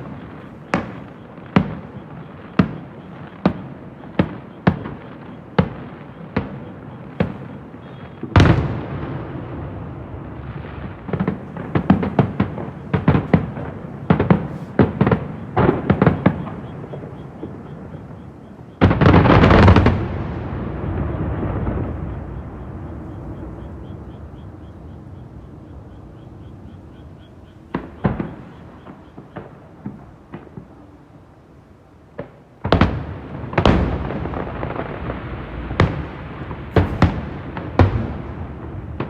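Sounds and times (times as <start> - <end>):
distant fireworks booming: 0.0 - 39.0
quick firework bangs: 11.0 - 18.2, 35.8 - 38.6.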